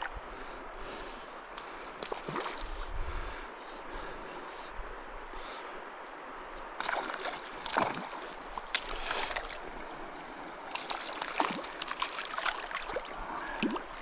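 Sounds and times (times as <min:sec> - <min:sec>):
stream running: 0:00.0 - 0:14.0
water splashing and sloshing: 0:00.8 - 0:02.9, 0:06.5 - 0:14.0.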